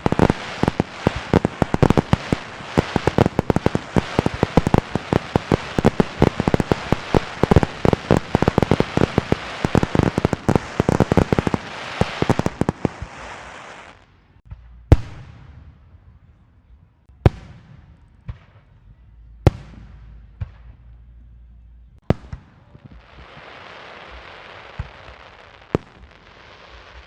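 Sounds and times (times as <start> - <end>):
firecrackers banging: 0.0 - 15.8.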